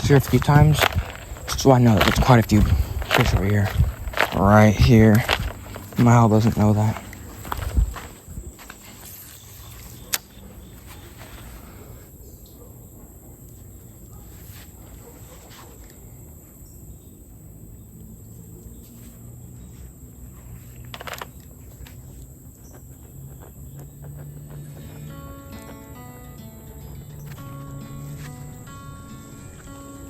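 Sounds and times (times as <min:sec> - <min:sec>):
short rustle: 0:00.0 - 0:12.1
high insect buzz: 0:16.6 - 0:30.0.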